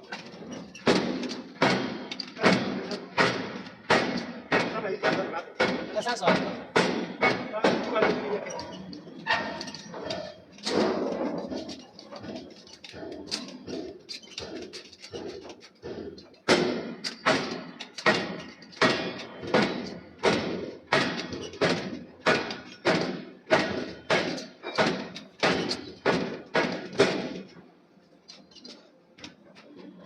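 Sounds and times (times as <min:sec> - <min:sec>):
hammer forging steel on anvil: 0:00.2 - 0:27.6.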